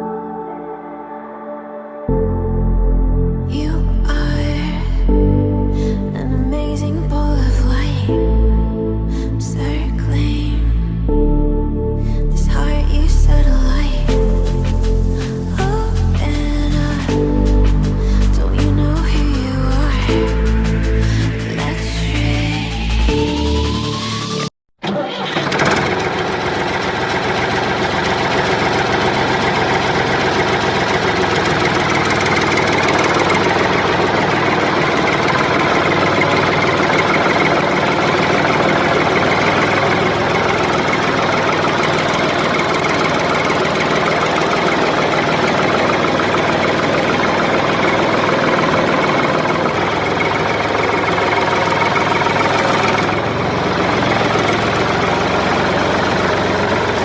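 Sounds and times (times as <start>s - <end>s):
toy tractor engine running: 24.8s - 57.0s.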